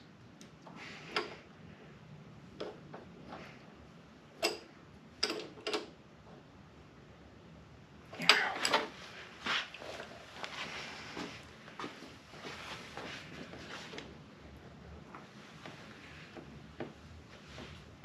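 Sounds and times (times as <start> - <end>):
metal parts clicking and knocking: 4.4 - 5.9.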